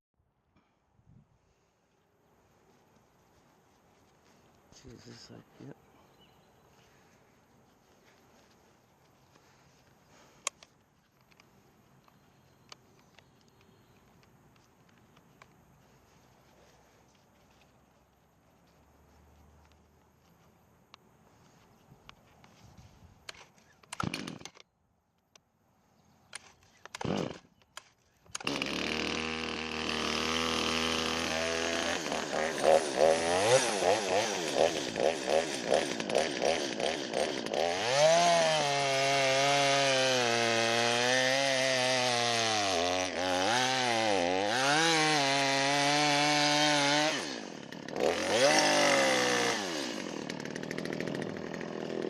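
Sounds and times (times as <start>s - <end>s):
chainsaw pull-cord rasps: 23.3s - 24.7s, 26.4s - 52.0s
chainsaw engine revving: 23.9s - 24.6s, 26.9s - 27.5s, 28.3s - 52.0s.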